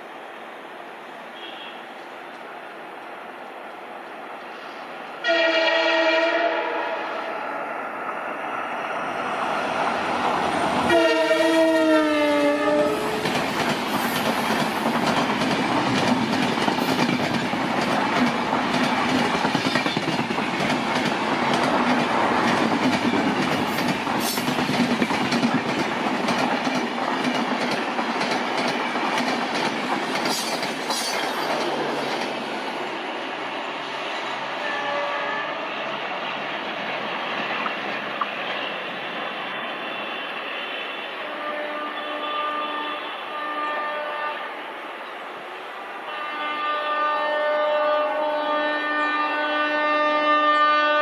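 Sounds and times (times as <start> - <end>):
train rumble: 0.0 - 45.2
locomotive horn blast: 1.4 - 1.8, 5.2 - 7.5, 10.8 - 13.2, 34.6 - 35.8, 41.1 - 44.6, 46.0 - 51.0.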